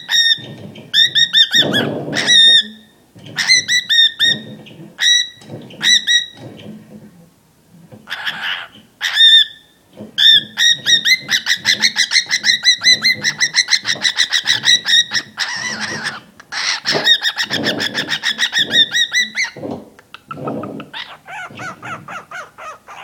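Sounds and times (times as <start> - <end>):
cockatiel hissing: 20.2 - 23.0.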